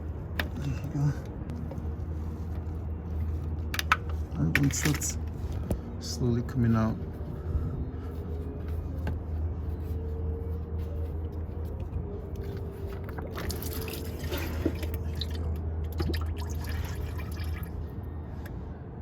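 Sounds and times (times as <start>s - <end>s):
steady low hum: 0.0s - 19.0s
oil dripping and trickling: 11.7s - 17.9s.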